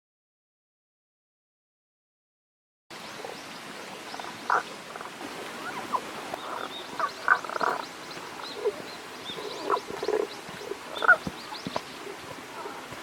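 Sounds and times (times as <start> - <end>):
frogs calling: 4.0 - 12.8.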